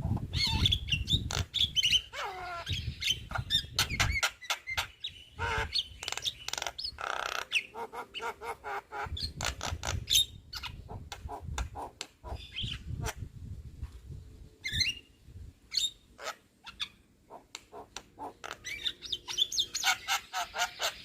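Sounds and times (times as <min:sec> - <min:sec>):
bird chattering song: 0:00.3 - 0:13.2, 0:15.7 - 0:21.0.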